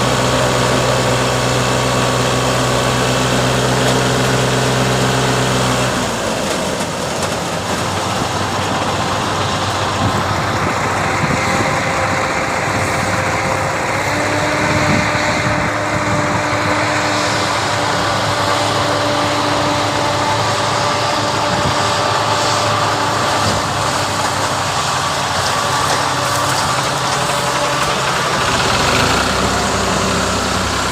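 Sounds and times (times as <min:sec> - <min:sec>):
diesel tractor engine running: 0:00.0 - 0:30.9
steady whine: 0:00.0 - 0:30.9.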